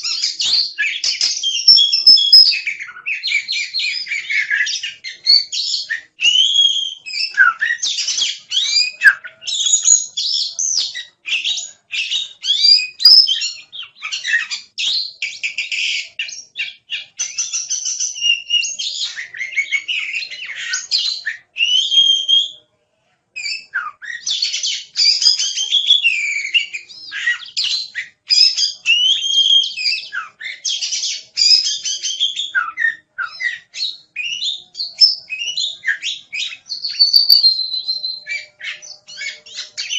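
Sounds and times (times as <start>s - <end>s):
songbird singing: 0.0s - 22.6s, 23.4s - 39.9s.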